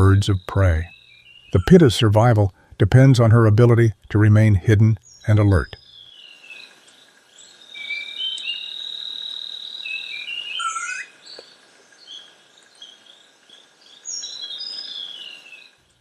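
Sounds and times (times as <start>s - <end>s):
insects humming: 0.0s - 16.0s
birds whistling: 7.4s - 11.5s.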